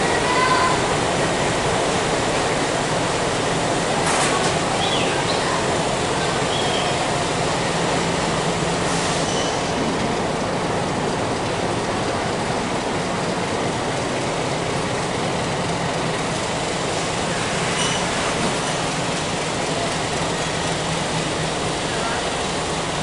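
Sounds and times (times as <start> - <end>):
train wheels rumbling on rails: 0.0 - 23.0
faint wheel squeals: 9.0 - 9.7, 17.7 - 18.2.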